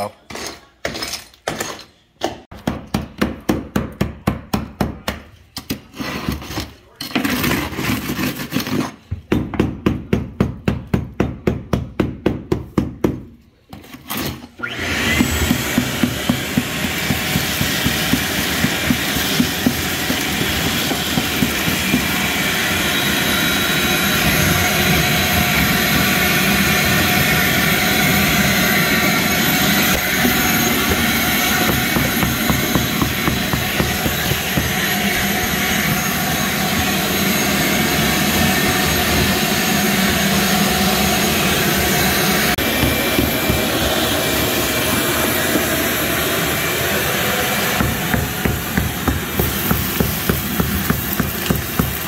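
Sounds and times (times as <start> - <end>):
shop vac running: 13.5 - 52.0
hammer striking chisel on tile: 15.4 - 22.2, 29.9 - 35.0, 42.6 - 43.7, 47.8 - 52.0.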